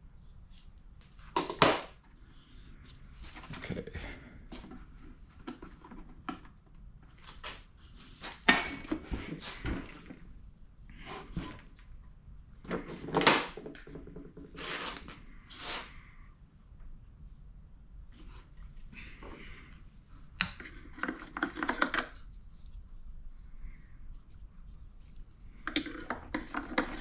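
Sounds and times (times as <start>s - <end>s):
parts clicking and scraping: 20.2s - 22.3s, 25.5s - 27.0s.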